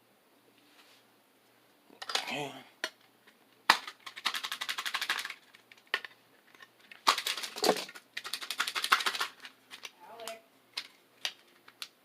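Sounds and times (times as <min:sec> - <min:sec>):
foil wrapper crinkling and tearing: 0:06.9 - 0:11.9.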